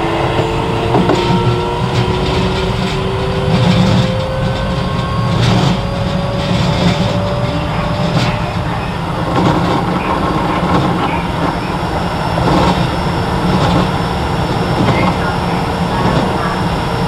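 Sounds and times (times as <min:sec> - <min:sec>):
train wheels rumbling on rail: 0:00.0 - 0:17.0
clacks over rail joints: 0:00.2 - 0:16.7.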